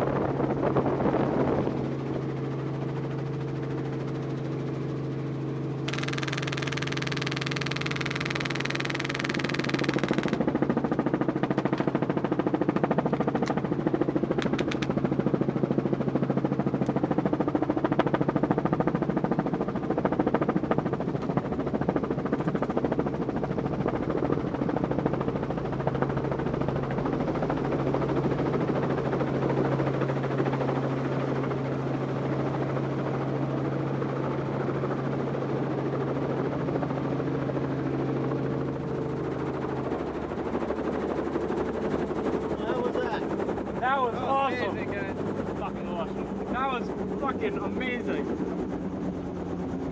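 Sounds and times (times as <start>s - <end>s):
helicopter humming: 0.0s - 49.9s
airsoft rifles firing bursts: 5.9s - 10.4s.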